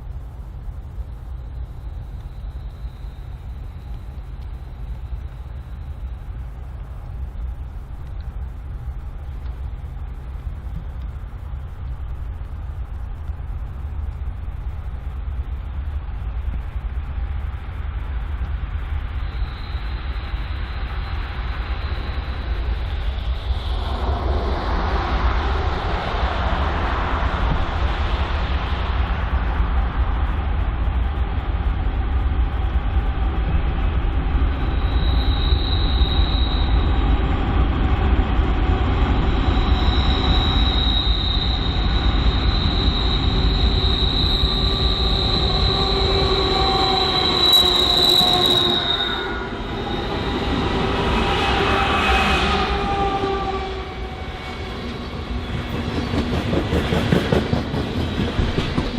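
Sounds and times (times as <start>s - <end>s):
freight train rumbling on rails: 0.0s - 58.9s
train wheel squeal: 2.2s - 5.9s, 19.1s - 28.8s, 34.2s - 58.9s.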